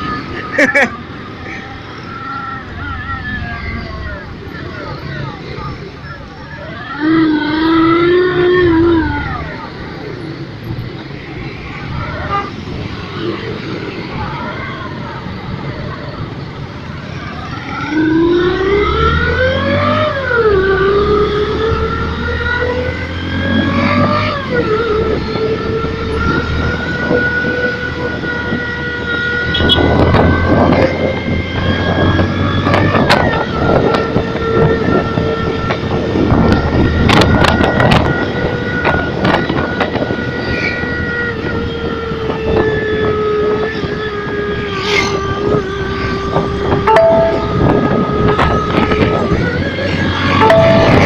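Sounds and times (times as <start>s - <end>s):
motorcycle engine whine: 16.0s - 51.0s.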